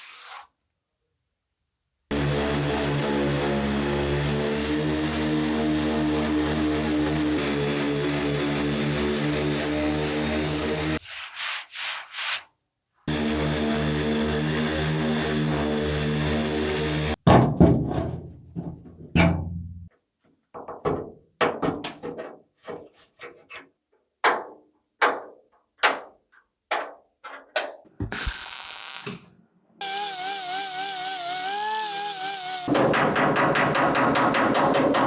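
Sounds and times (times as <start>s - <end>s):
power tool whine: 2.1s - 11.0s, 13.1s - 17.2s, 29.8s - 32.7s
hammer striking sheet metal: 32.7s - 35.0s.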